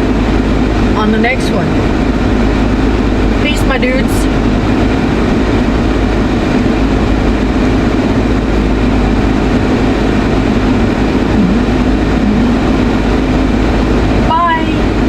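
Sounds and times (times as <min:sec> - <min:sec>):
car cabin rumble with hiss: 0:14.0 - 0:15.0.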